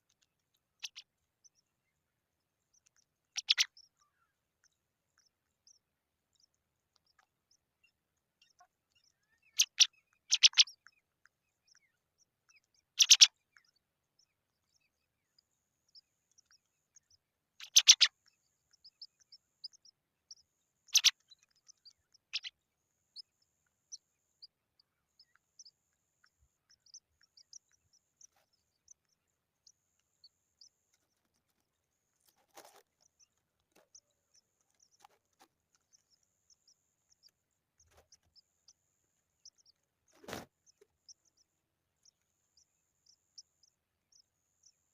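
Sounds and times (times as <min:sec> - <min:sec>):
faint high chirps: 0:00.0 - 0:44.9
pipits calling: 0:00.8 - 0:01.0, 0:03.4 - 0:03.9, 0:09.5 - 0:10.8, 0:13.0 - 0:13.3, 0:17.6 - 0:18.2, 0:18.8 - 0:22.5.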